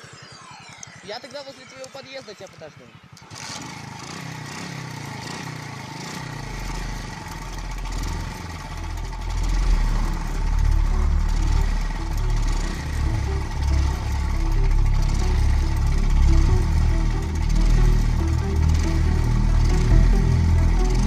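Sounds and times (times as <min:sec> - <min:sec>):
motorcycle engine revving: 0:02.8 - 0:21.0
low rumble: 0:06.6 - 0:21.0.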